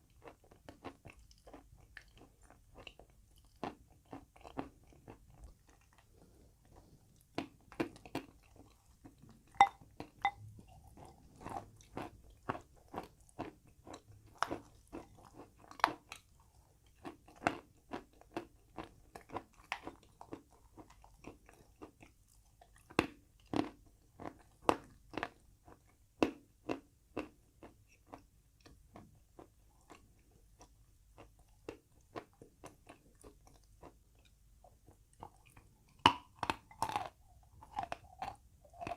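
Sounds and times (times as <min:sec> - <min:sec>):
crunching and chewing chalk: 0:00.0 - 0:38.9.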